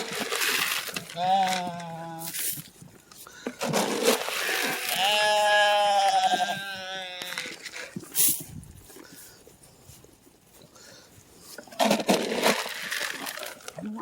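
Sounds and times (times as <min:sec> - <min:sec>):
rustling: 0:00.0 - 0:14.0
goat or sheep bleating: 0:01.0 - 0:02.4, 0:04.8 - 0:07.6.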